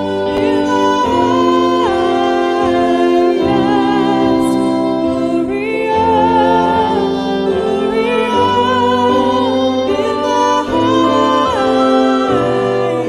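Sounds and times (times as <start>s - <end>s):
piano: 0.0s - 13.0s
wind instrument accompaniment: 0.0s - 13.0s
woman singing a hymn: 0.0s - 13.0s.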